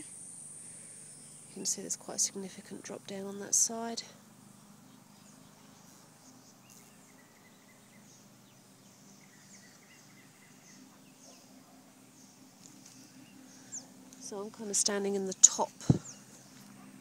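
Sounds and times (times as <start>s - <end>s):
distant bird chirps: 0.0s - 17.0s
low steady hum: 0.0s - 17.0s.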